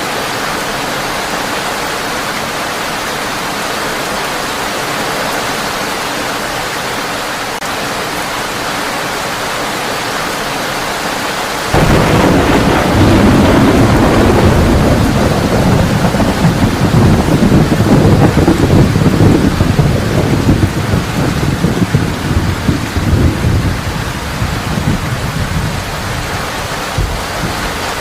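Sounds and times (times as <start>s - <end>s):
heavy rain on a tin roof: 0.0s - 28.0s
thunder rumbling: 11.7s - 28.0s.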